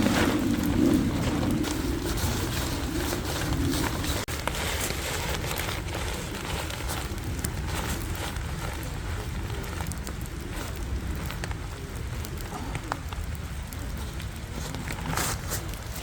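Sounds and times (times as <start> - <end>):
low rumble: 0.0 - 4.9
rain pattering on tent fabric: 0.0 - 16.0.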